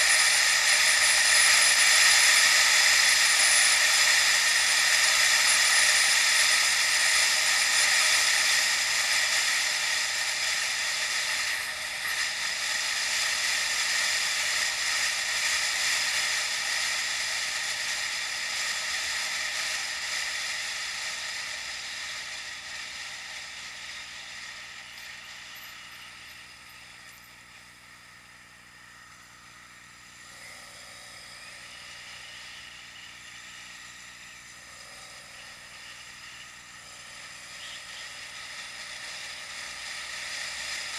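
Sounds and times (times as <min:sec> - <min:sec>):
wind and road noise from bicycle: 0:31.8 - 0:40.9.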